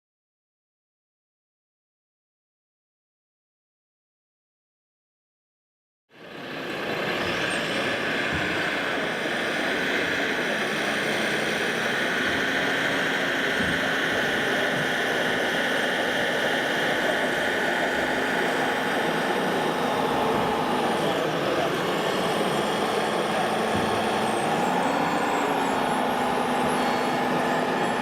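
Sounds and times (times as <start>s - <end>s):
dense background noise: 6.2s - 28.0s
mechanical whine: 6.3s - 28.0s.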